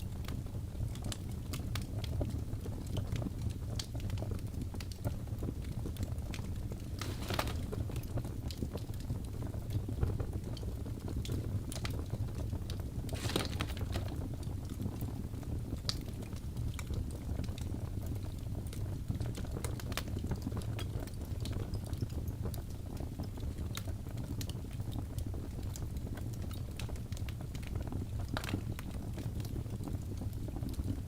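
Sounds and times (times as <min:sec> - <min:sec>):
low rumble of flames: 0:00.0 - 0:31.0
logs crackling and popping: 0:00.1 - 0:31.0
fire hissing: 0:06.7 - 0:08.2, 0:13.0 - 0:14.4.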